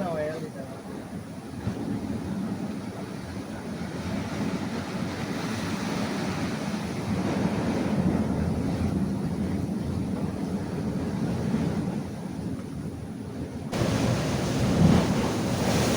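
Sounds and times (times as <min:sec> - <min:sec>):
wind buffeting microphone: 0:00.0 - 0:15.9
surf breaking over rocks: 0:13.7 - 0:15.9.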